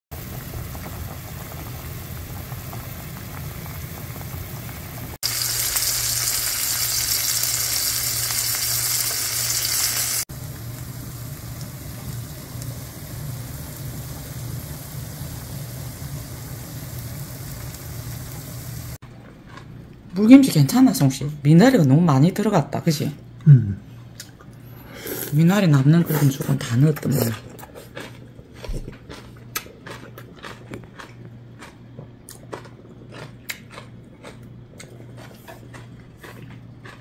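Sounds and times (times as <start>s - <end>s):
patties sizzling in oil: 0.1s - 19.0s
soup boiling in a pot: 0.1s - 19.0s.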